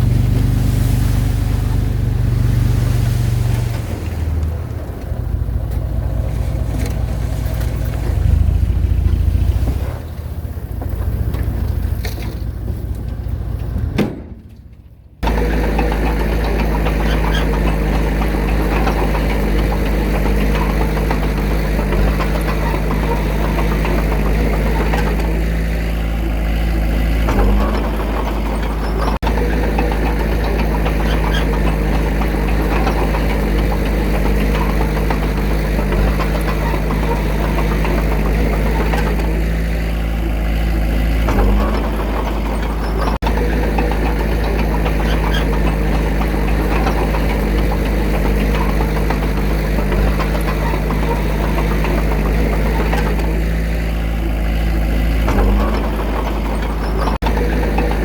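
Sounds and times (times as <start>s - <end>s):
heavy machinery diesel engine running: 0.0s - 58.0s.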